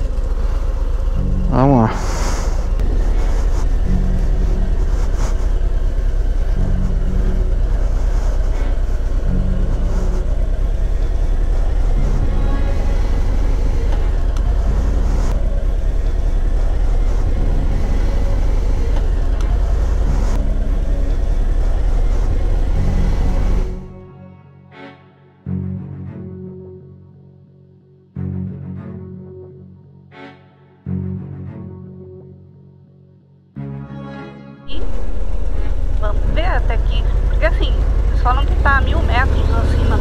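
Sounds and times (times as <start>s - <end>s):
motorcycle engine rumbling: 0.0s - 24.0s, 34.7s - 40.0s.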